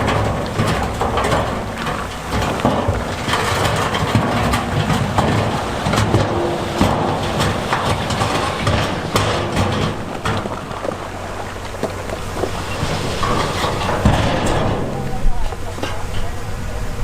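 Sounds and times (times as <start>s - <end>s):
rock knocking on rock and steel: 0.0s - 15.6s
loose stone grinding and clattering: 0.0s - 16.3s
diesel earthmoving machine running: 0.0s - 17.0s.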